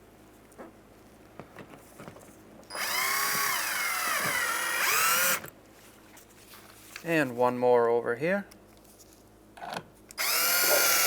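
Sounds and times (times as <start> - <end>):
cordless drill driving screw: 2.7 - 5.5, 10.2 - 11.0.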